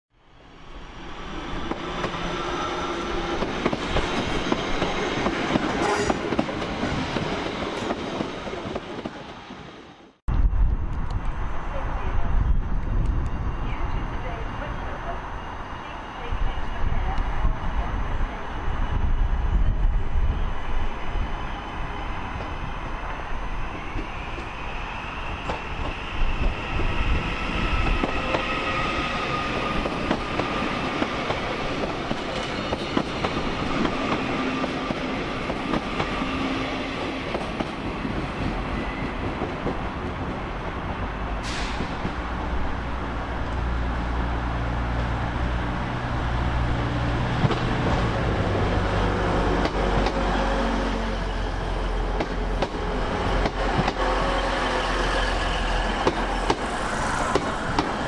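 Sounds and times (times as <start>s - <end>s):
electric train rumbling: 0.2s - 58.0s
high squeal: 0.4s - 3.4s, 18.7s - 29.8s.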